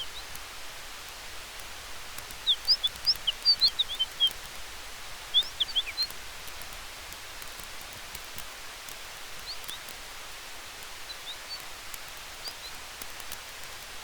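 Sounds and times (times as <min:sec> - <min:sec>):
faint campfire crackles: 0:00.0 - 0:14.0
steady hiss: 0:00.0 - 0:14.0
small bird chirping: 0:02.2 - 0:04.6, 0:05.2 - 0:06.7, 0:09.3 - 0:10.0, 0:10.7 - 0:13.4.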